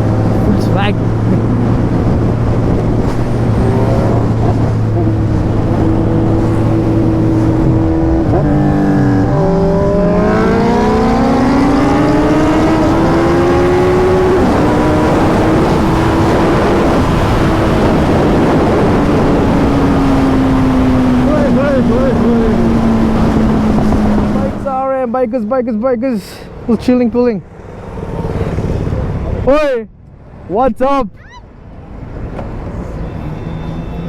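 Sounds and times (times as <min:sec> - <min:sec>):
motorcycle engine accelerating: 0:00.0 - 0:24.9
road noise: 0:00.0 - 0:34.0.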